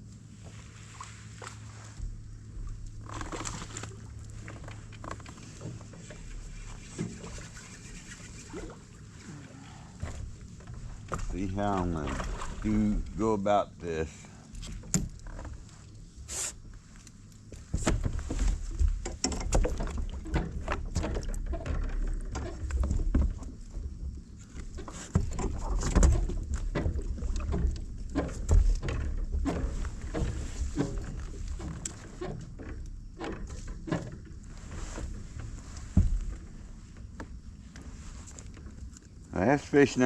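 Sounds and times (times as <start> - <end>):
knocks and clicks of gear: 14.6 - 15.8, 17.0 - 39.1.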